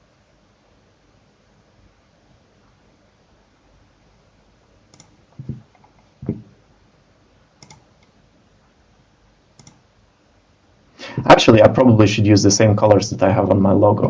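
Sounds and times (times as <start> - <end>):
mouse and keyboard clicks: 4.9 - 6.4, 7.6 - 8.1, 9.6 - 9.8.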